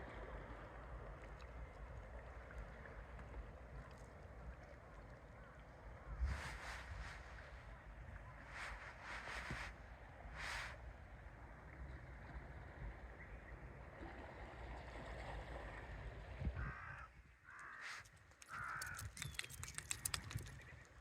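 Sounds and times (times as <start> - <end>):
steady low rumble: 0.0 - 13.9
crow cawing: 16.6 - 19.1.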